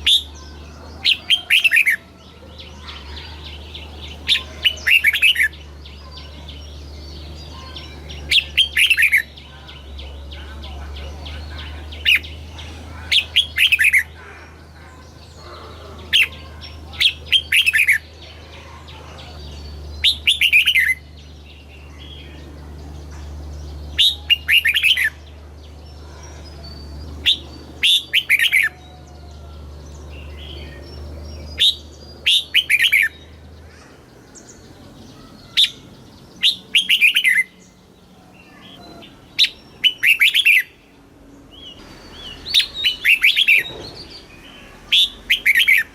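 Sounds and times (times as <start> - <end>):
bird singing whistled notes: 26.4 - 33.4, 34.4 - 40.8, 41.5 - 45.9.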